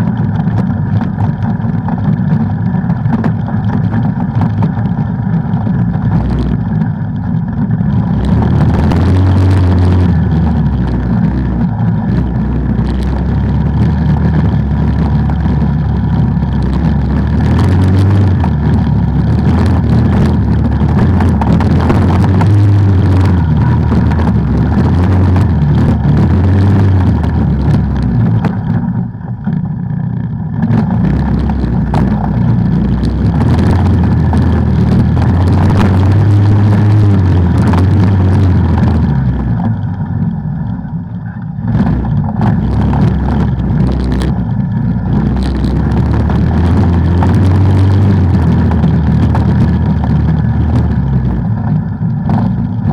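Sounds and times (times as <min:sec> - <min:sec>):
rattling and knocks: 0:00.0 - 0:29.0
off-road vehicle engine running hard: 0:00.0 - 0:52.9.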